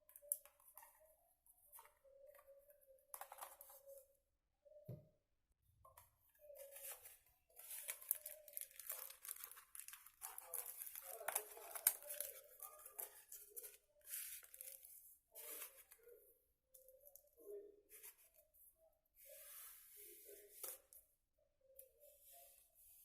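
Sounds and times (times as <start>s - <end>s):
tearing and crinkling: 7.6s - 14.9s.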